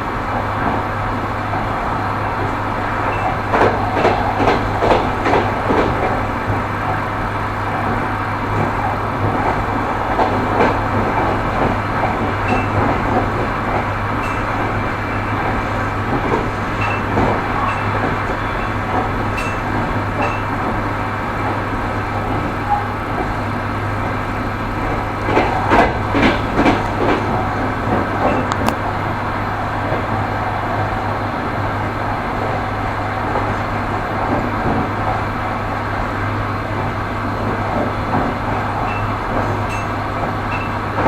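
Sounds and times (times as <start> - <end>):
train wheels rumbling on rails: 0.0 - 41.0
wheels clacking over rail joints: 0.1 - 41.0.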